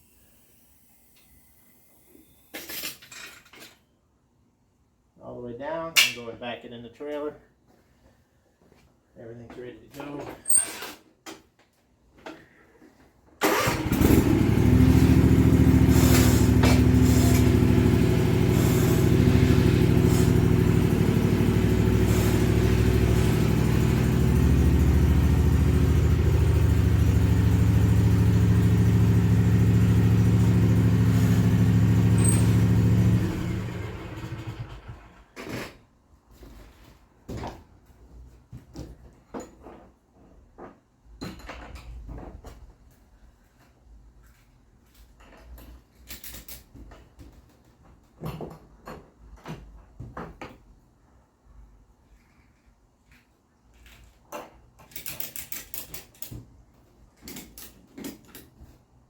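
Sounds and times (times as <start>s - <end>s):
mower engine running: 13.4s - 35.2s.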